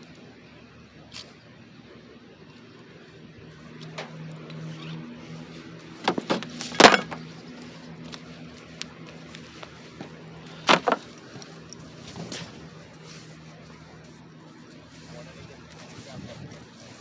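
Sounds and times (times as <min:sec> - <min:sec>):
sharp knocks and clanks: 0:06.0 - 0:07.2, 0:10.6 - 0:11.1.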